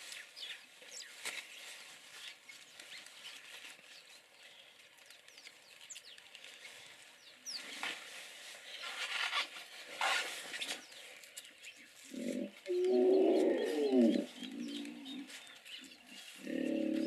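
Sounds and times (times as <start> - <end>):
hippopotamus calling: 12.1 - 15.3.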